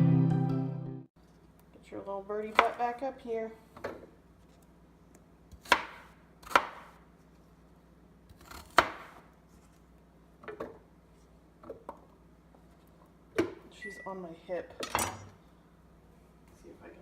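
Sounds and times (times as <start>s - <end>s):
knife chopping on cutting board: 5.5s - 7.0s, 8.3s - 9.3s.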